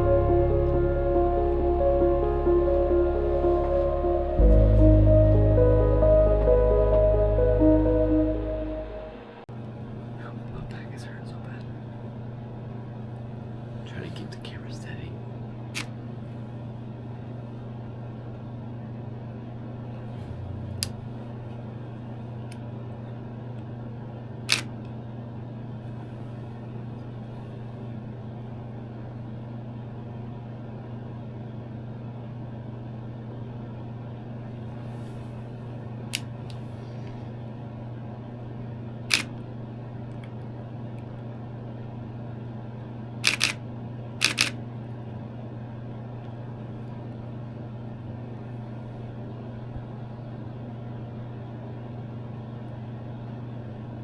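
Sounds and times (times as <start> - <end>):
steady low hum: 0.0 - 15.5
camera shutter clicking: 43.2 - 43.6, 44.2 - 44.6.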